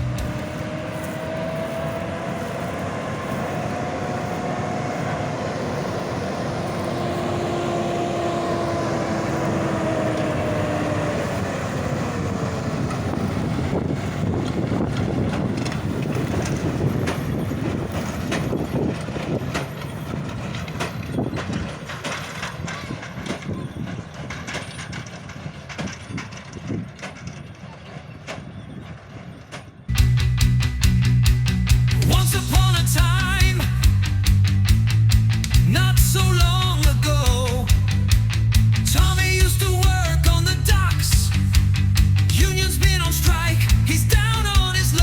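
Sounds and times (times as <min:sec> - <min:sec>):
machine whine: 0:00.0 - 0:34.2
diesel farm machine running: 0:00.0 - 0:45.0.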